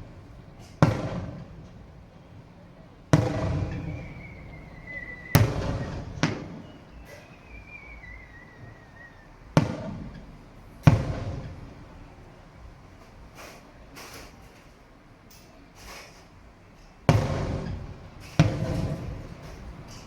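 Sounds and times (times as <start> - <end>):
fireworks booming: 0.0 - 13.6, 16.9 - 20.0
firework whistles falling in pitch: 3.2 - 9.5.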